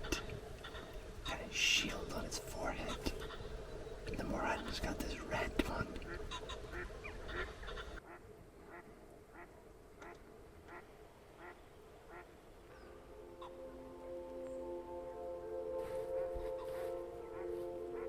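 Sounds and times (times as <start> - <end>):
waterbird calling: 0.0 - 13.8
soft music with held notes: 12.6 - 18.0.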